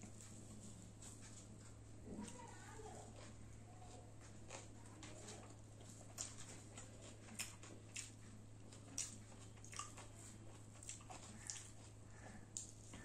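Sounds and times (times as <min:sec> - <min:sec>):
low steady hum: 0:00.0 - 0:13.0
wet chewing and lip smacks: 0:04.2 - 0:13.0.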